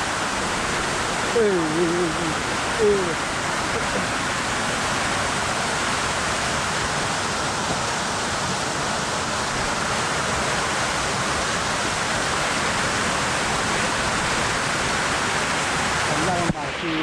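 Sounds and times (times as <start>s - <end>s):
waterfall and rushing stream: 0.0s - 17.0s.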